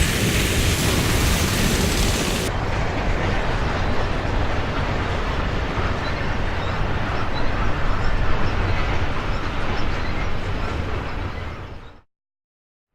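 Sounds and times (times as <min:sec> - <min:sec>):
freight train rumbling past: 0:00.0 - 0:09.9
wheels rattling on rails: 0:00.0 - 0:11.4.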